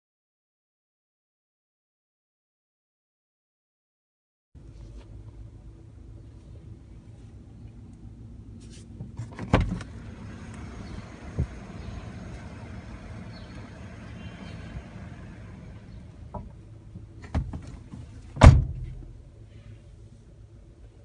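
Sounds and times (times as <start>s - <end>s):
low background hum: 4.6s - 21.0s
car door shutting: 9.0s - 19.2s.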